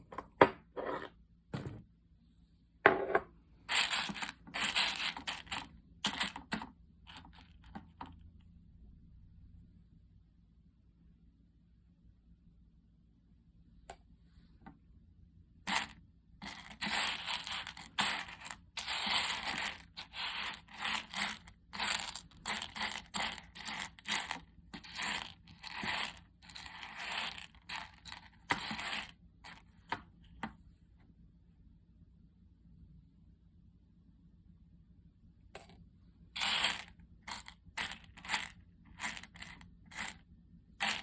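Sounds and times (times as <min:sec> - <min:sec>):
coffee beans scraping and crunching: 0:03.7 - 0:06.4, 0:15.7 - 0:29.6, 0:36.4 - 0:40.2, 0:40.8 - 0:41.0.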